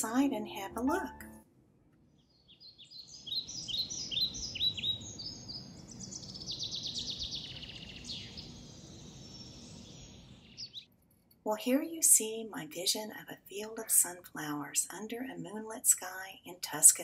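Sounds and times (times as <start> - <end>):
songbirds chirping and singing: 2.1 - 10.9.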